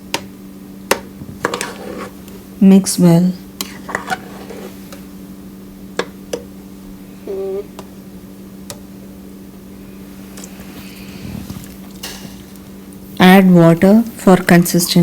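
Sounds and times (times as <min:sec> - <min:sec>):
steady low hum: 0:00.0 - 0:15.0
food being stirred: 0:01.3 - 0:02.4, 0:03.6 - 0:05.1.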